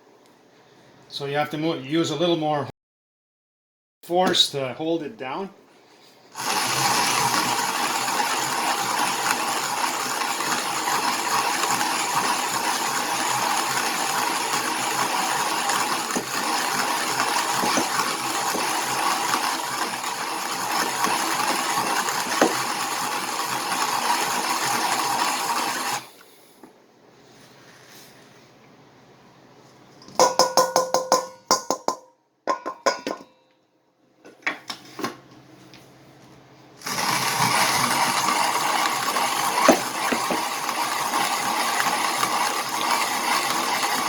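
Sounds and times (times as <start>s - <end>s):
hand-cranked coffee grinder grinding: 6.4s - 26.2s, 36.8s - 44.0s.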